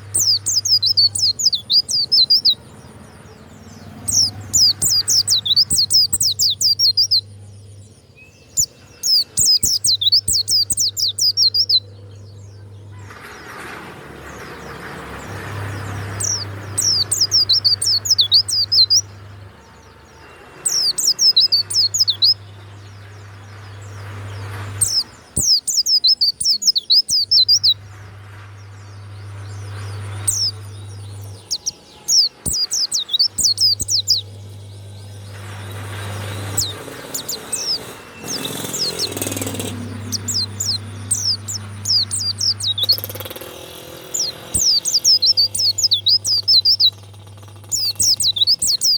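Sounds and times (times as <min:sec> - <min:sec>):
bird twittering: 0:00.0 - 0:07.3, 0:08.2 - 0:13.1, 0:16.0 - 0:27.8, 0:28.7 - 0:48.9
low hum: 0:27.8 - 0:47.7.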